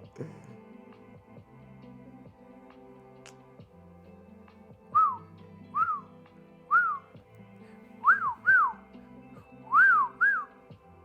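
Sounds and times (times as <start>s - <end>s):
soft background music: 0.0s - 11.0s
short whistled notes: 4.9s - 6.1s, 6.7s - 7.1s, 8.0s - 8.8s, 9.7s - 10.6s.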